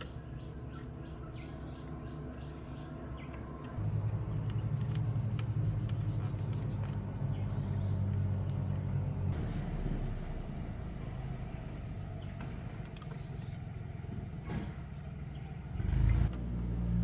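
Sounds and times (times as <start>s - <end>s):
low electrical hum: 0.0s - 17.0s
short rumble: 3.8s - 16.4s.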